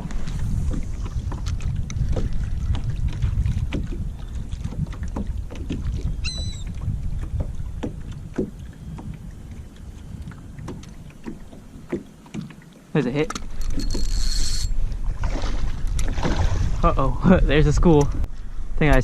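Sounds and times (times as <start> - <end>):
wind rumbling on microphone: 0.0 - 12.5, 13.3 - 19.0
high-pitched bird call: 6.2 - 6.7.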